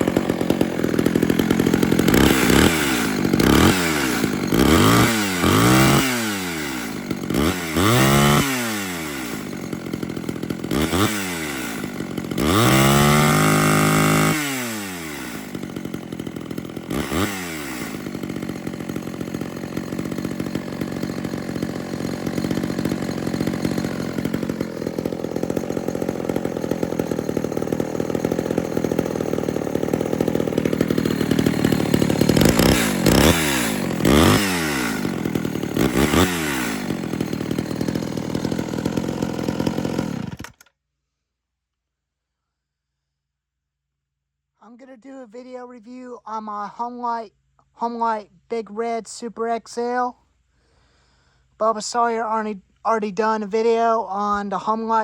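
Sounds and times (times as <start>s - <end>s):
chainsaw revving and idling: 0.0s - 40.7s.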